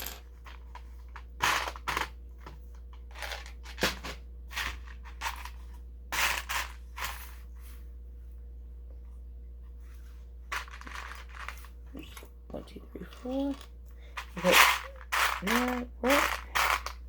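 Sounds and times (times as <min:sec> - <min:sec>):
plastic toy bricks clattering: 0:00.0 - 0:02.2, 0:03.0 - 0:05.6, 0:10.5 - 0:11.7, 0:13.2 - 0:17.0.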